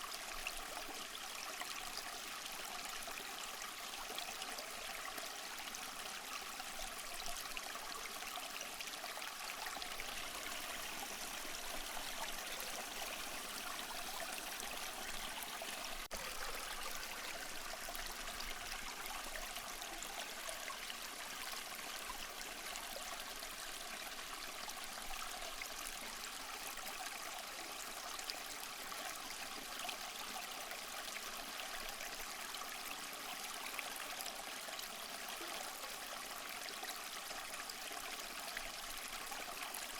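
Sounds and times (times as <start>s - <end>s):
running water rushing: 9.9s - 19.6s.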